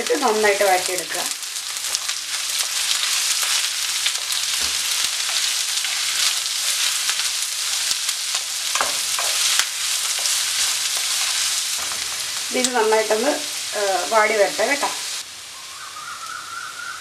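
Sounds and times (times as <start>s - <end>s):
onions sizzling in hot oil: 0.0s - 16.4s
spatula scraping pan: 8.4s - 13.2s.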